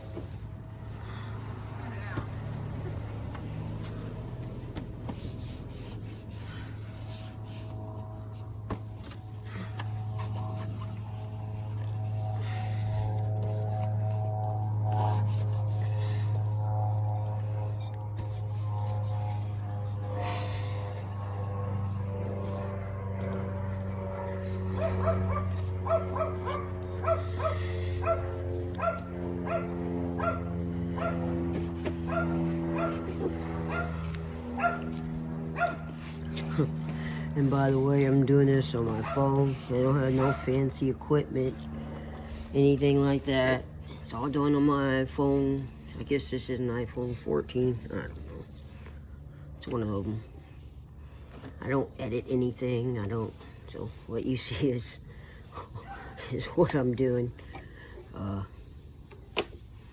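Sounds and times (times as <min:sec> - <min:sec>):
rubbing and scraping: 0:00.0 - 0:40.9
steady low hum: 0:00.0 - 0:59.9
dog yipping: 0:24.8 - 0:28.2, 0:28.8 - 0:31.2, 0:32.1 - 0:33.0, 0:33.7 - 0:34.0, 0:34.6 - 0:34.9, 0:35.6 - 0:35.9.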